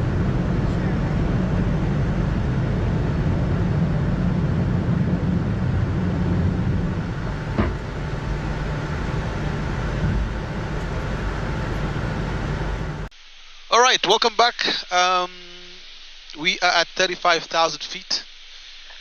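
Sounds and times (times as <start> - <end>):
airflow: 0.0 - 13.1
airliner engine noise: 0.0 - 13.1.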